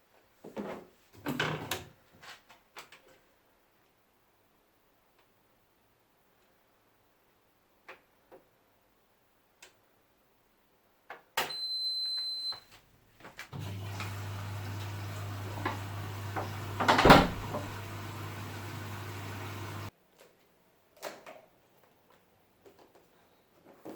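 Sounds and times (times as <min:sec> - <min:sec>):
appliance humming: 0:13.5 - 0:19.9.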